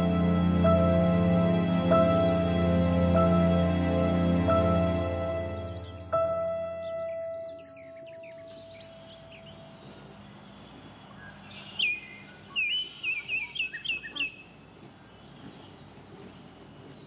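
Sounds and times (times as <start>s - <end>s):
small bird chirping: 5.7s - 17.0s.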